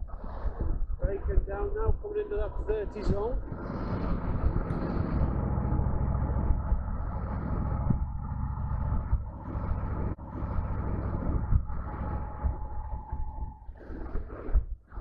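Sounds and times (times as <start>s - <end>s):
steady low rumble: 0.0s - 15.0s
motorcycle engine running: 4.0s - 13.4s.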